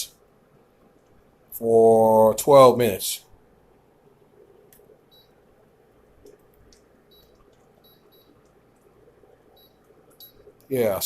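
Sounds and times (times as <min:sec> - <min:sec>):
low hum: 0:00.0 - 0:11.0
short electronic beeps: 0:05.1 - 0:05.4, 0:07.1 - 0:08.4, 0:09.6 - 0:10.5.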